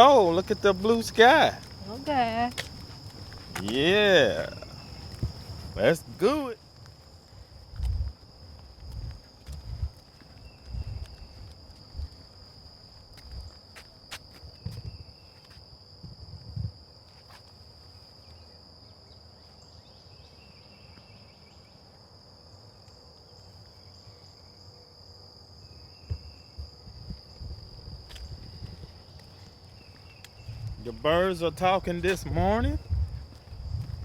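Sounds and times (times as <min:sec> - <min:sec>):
footsteps on a trail: 0:00.0 - 0:15.8, 0:17.0 - 0:18.2, 0:26.1 - 0:34.0
high insect trill: 0:00.0 - 0:34.0.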